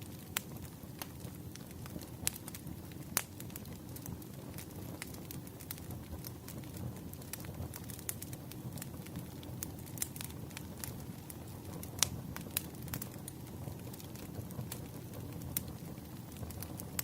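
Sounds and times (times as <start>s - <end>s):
burning wood crackling and popping: 0.0s - 17.0s
campfire low rumble: 0.0s - 17.0s.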